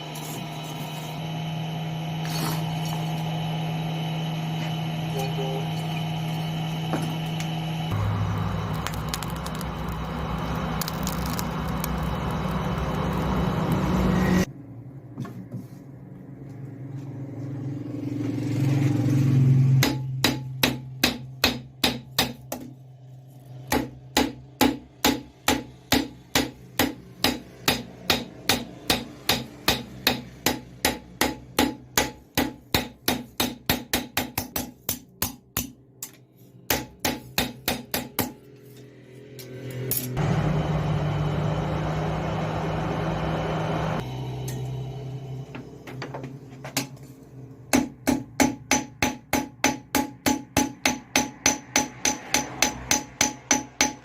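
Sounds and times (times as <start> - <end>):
hammer striking metal: 19.7 - 22.8, 23.6 - 38.6, 47.7 - 54.0.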